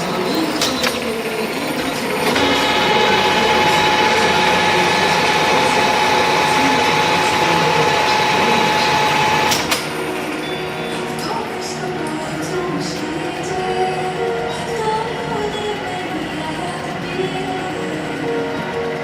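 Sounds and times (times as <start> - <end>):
milling machine whining: 0.0 - 19.0
machine click: 8.6 - 10.2.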